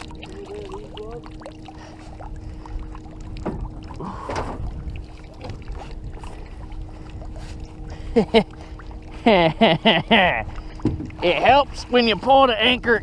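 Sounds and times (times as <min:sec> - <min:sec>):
steady low hum: 0:00.0 - 0:13.0
wind and water rumbling: 0:00.0 - 0:13.0
knocks on boat hull: 0:10.8 - 0:11.1.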